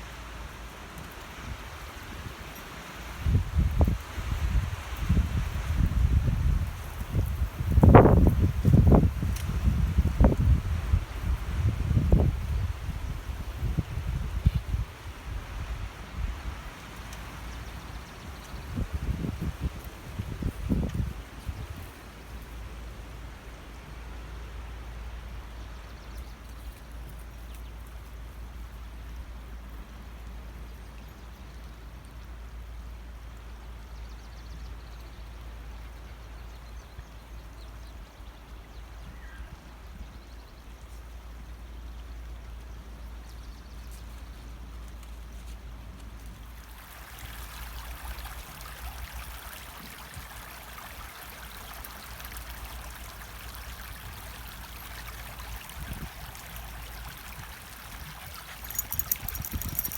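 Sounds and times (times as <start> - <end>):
stream water rushing: 46.6 - 59.9.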